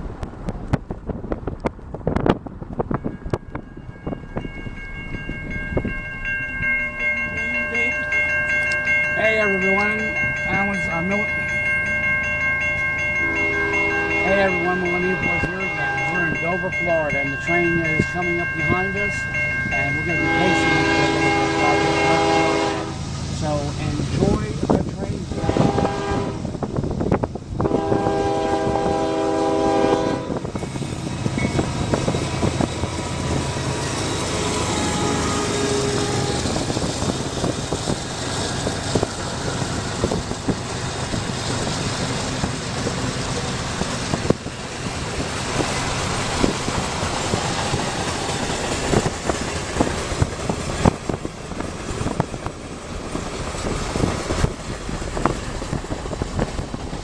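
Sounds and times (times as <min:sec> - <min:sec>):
train rumbling past: 0:00.0 - 0:57.0
train horn blast: 0:13.2 - 0:16.3, 0:19.8 - 0:23.6, 0:25.0 - 0:26.6, 0:27.6 - 0:30.5, 0:33.7 - 0:37.0.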